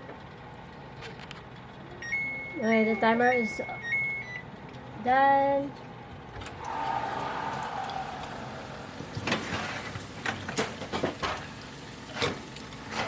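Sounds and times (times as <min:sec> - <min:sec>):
oven timer beep: 0:02.0 - 0:04.6
rush of noise from open oven: 0:06.2 - 0:13.0.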